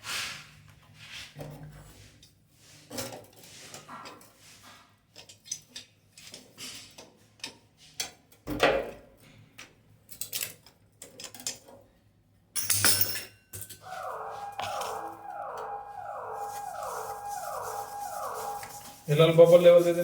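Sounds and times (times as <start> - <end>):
metallic clinks and taps of tools: 12.6 - 13.8.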